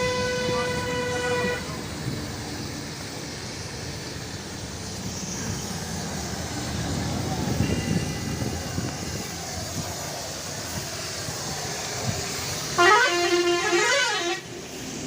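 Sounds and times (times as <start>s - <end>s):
vehicle horn: 0.0s - 1.7s, 12.8s - 14.5s
steady background noise: 0.0s - 15.0s.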